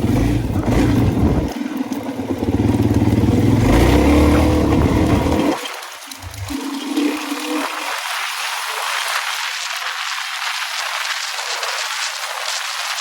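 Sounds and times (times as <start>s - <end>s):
dirt bike engine revving: 0.0s - 7.6s.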